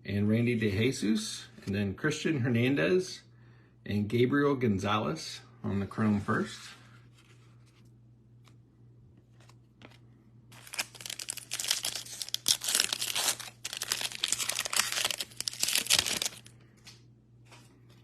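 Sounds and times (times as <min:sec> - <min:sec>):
wrapper being torn and crinkled: 0:10.5 - 0:16.5.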